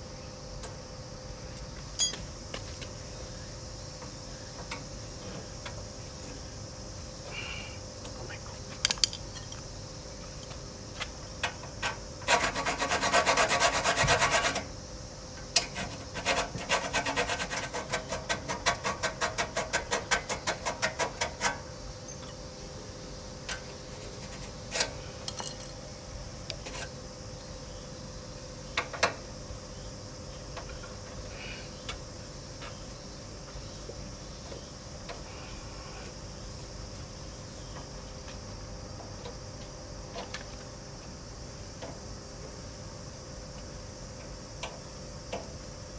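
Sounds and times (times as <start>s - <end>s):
hand tool scraping metal: 12.2s - 14.6s, 15.6s - 21.6s.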